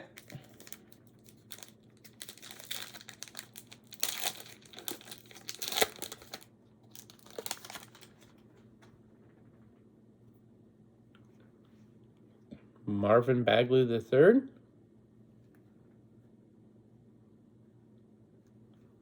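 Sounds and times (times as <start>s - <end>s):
plastic wrapper tearing and crinkling: 0.0s - 8.3s.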